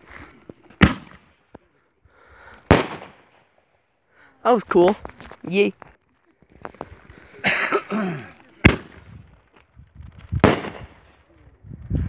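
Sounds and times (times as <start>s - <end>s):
firework bangs with echo: 0.8s - 1.3s, 2.7s - 3.4s, 8.6s - 9.0s, 10.4s - 11.0s
firework rushing hiss: 10.1s - 11.1s.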